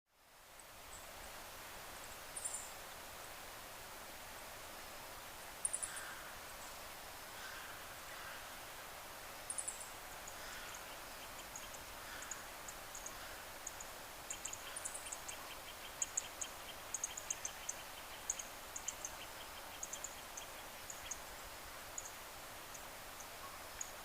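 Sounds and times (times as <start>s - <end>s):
steady outdoor hiss: 0.1s - 24.0s.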